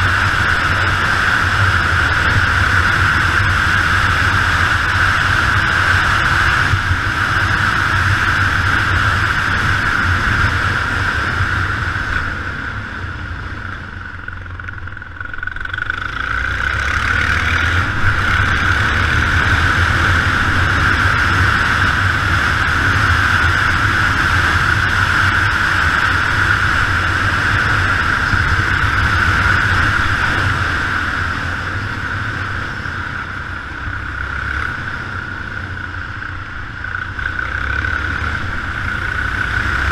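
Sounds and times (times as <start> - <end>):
motorcycle engine running: 0.0 - 39.9
wind rushing over camera: 0.0 - 39.9.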